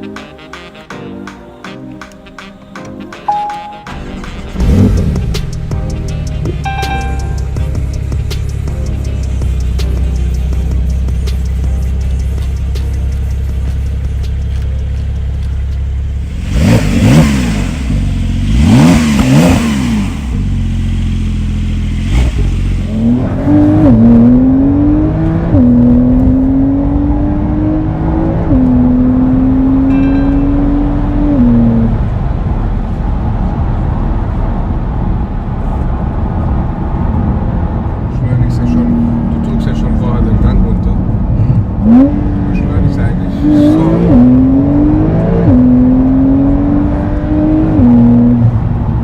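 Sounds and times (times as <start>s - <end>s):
sports car engine revving: 4.2s - 33.9s, 37.8s - 49.0s.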